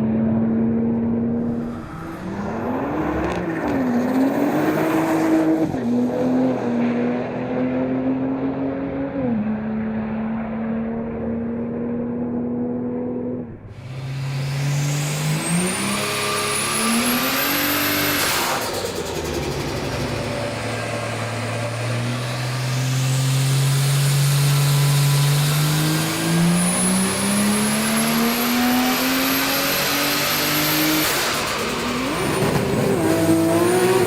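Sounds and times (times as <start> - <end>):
car engine accelerating hard: 0.0 - 34.0
high turbo whistle: 13.7 - 34.0.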